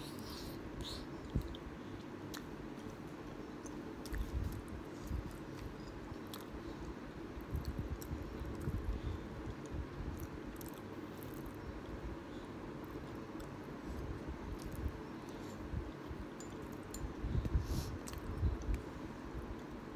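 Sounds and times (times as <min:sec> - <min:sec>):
close chewing noodles: 0:03.6 - 0:11.5.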